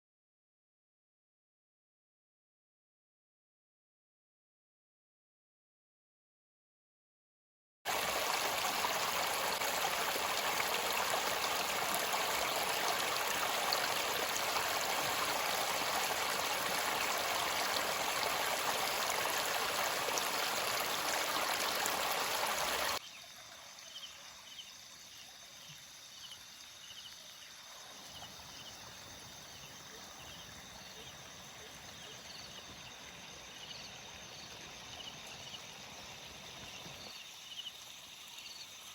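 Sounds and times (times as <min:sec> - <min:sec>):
river water rushing: 0:07.9 - 0:23.0.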